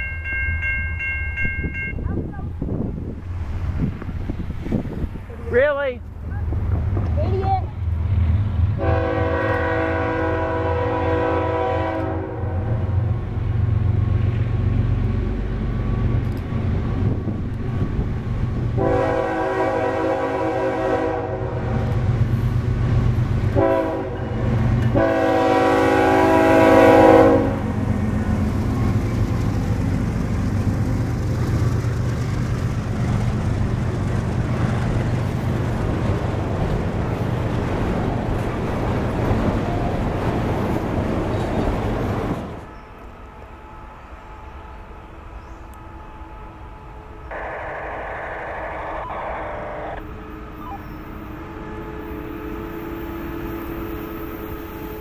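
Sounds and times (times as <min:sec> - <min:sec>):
train wheels rumbling on rails: 0:00.0 - 0:46.5
locomotive engine rumbling: 0:00.0 - 0:55.0
train horn blasts: 0:08.7 - 0:13.0, 0:18.8 - 0:22.0, 0:23.5 - 0:27.9, 0:50.4 - 0:55.0.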